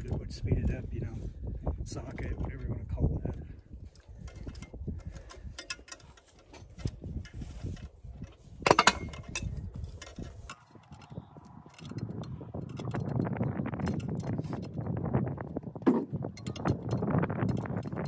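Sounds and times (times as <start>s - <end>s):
hand tool clicking on metal: 4.3s - 14.8s, 16.4s - 18.0s
metal clank: 8.6s - 11.1s.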